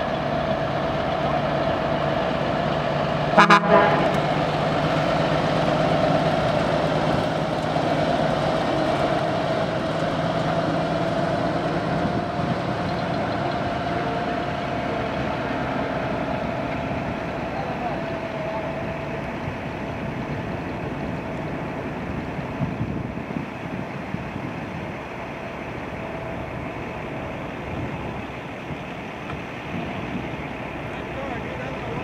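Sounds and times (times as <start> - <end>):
diesel truck engine running: 0.0 - 32.0
air horn toots: 3.4 - 4.3.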